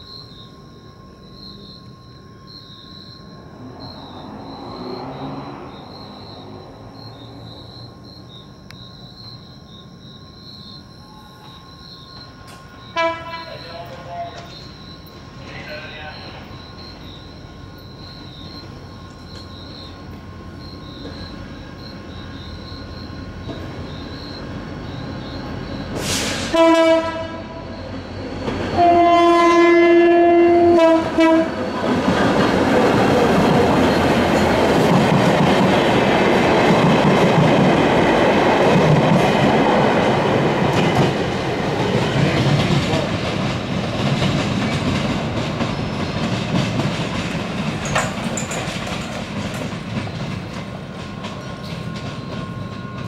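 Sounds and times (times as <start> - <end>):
train passing at speed: 0.0 - 53.0
train horn blasts: 12.6 - 14.6, 26.0 - 27.8, 28.7 - 31.7
wheels clattering over track: 31.9 - 53.0.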